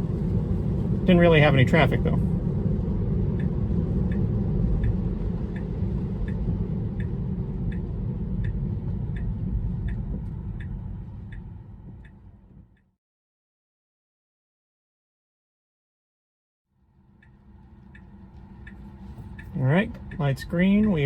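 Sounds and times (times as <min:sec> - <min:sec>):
car cabin road noise: 0:00.0 - 0:12.9, 0:16.8 - 0:21.0
turn signal ticking: 0:00.0 - 0:13.0, 0:16.8 - 0:21.0.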